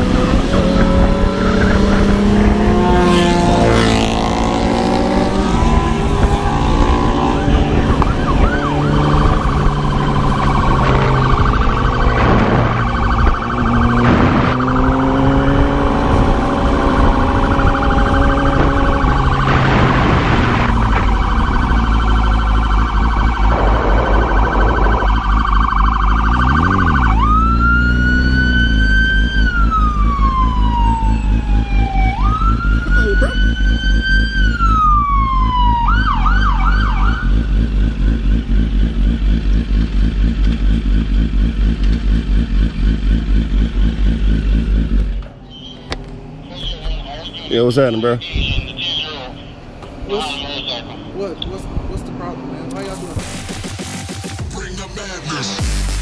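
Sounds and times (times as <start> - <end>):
police siren wailing: 0.0 - 37.6, 52.7 - 56.0
motorcycle engine changing gears: 0.0 - 46.3.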